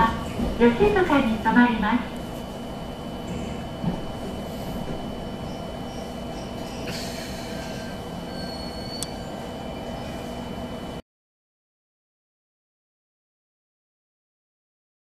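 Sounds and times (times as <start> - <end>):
train running rumble with whine: 0.0 - 11.0
high wheel squeal: 5.5 - 10.1
train hiss: 6.6 - 9.0
click: 9.0 - 9.2.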